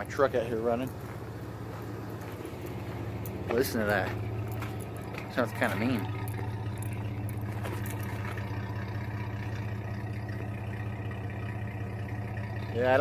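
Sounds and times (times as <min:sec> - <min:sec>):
engine idling with deep growl: 0:00.0 - 0:13.0.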